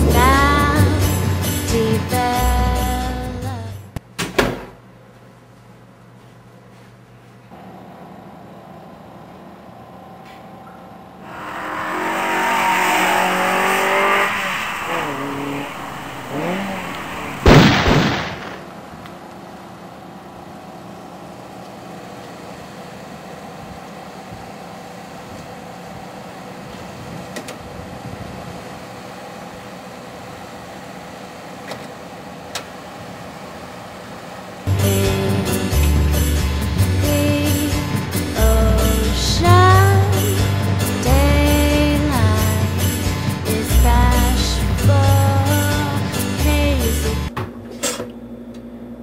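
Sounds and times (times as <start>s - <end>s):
vehicle engine revving: 0.0s - 2.2s, 11.2s - 18.8s
loud bang: 11.3s - 18.9s.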